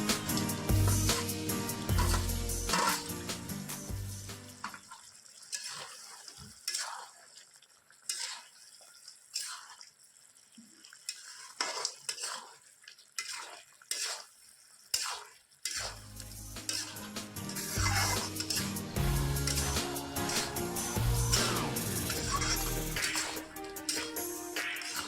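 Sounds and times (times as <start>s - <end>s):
background music: 0.0s - 4.6s, 16.0s - 25.0s
spatula scraping in a pan: 0.0s - 4.8s, 5.5s - 7.2s, 8.1s - 8.6s, 9.2s - 9.8s, 11.1s - 12.6s, 13.2s - 25.0s
faint sizzle: 0.0s - 5.0s, 14.9s - 25.0s.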